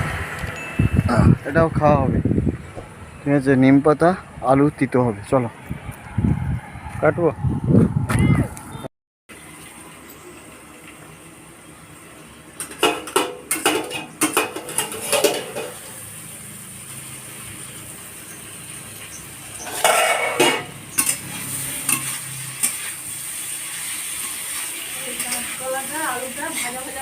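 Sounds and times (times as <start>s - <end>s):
food sizzling in oil: 9.3s - 27.0s
scraping against a pan: 13.6s - 15.9s, 19.6s - 23.0s.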